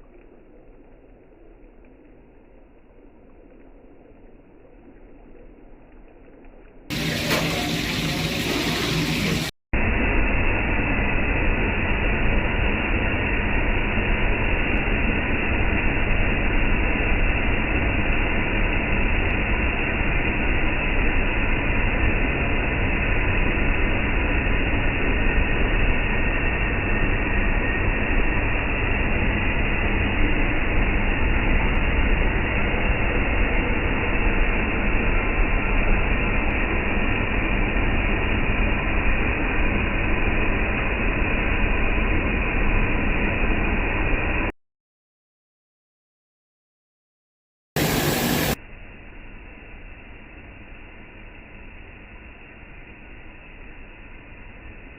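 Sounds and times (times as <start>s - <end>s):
restaurant kitchen rushing noise: 6.9s - 44.5s, 47.8s - 50.2s.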